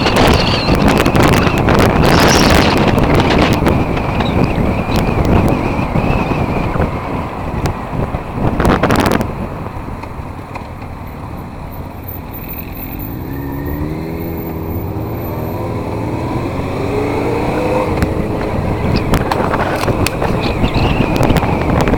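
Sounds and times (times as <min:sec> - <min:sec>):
wind rushing over microphone: 0:00.0 - 0:21.9
motorcycle engine accelerating: 0:12.6 - 0:21.9.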